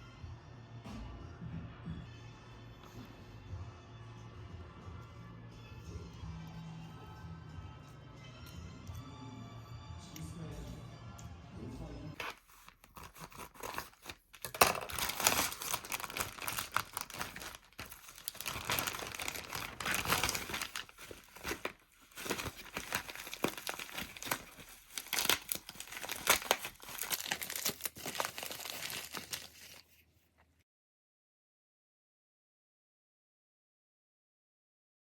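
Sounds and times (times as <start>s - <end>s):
packaging crinkling and tearing: 12.2s - 30.0s.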